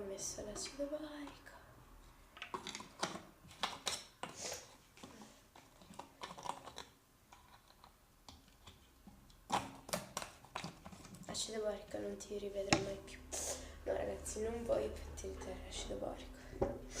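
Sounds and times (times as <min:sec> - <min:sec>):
small plastic items clicking: 0:05.0 - 0:11.3.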